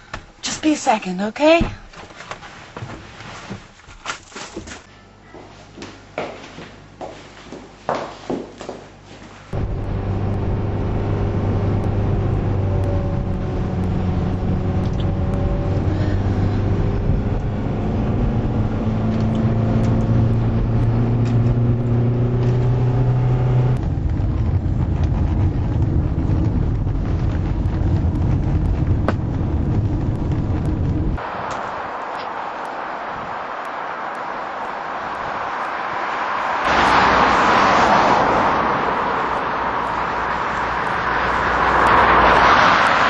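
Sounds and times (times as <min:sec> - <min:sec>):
car engine running: 0:09.6 - 0:31.2.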